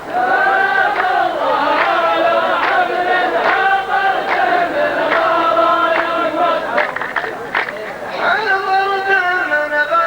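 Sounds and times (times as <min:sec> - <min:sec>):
men chanting in unison: 0:00.0 - 0:07.0.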